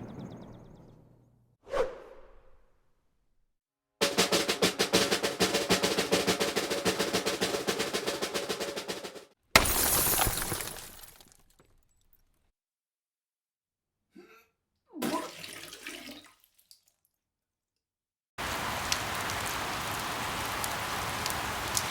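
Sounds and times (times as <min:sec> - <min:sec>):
snare drum roll: 0:04.0 - 0:09.4.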